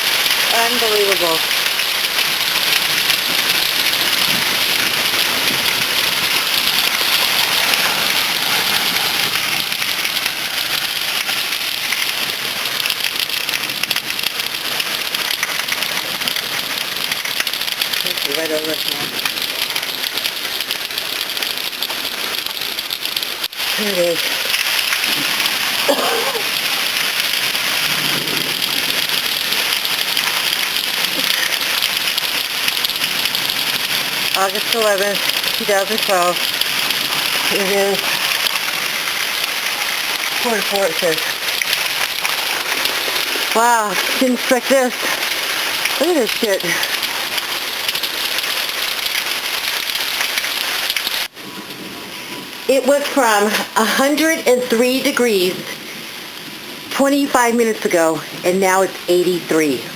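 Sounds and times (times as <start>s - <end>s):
heavy rain on hard surfaces: 0.0s - 59.9s.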